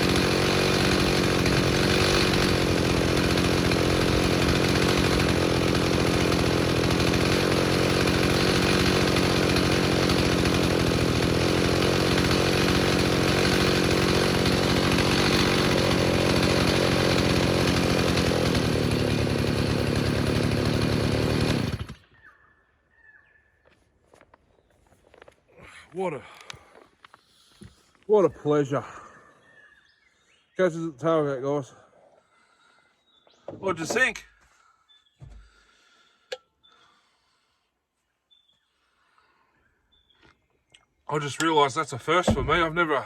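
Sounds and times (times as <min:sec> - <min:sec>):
chainsaw running at high revs: 0:00.0 - 0:22.1, 0:41.4 - 0:43.0.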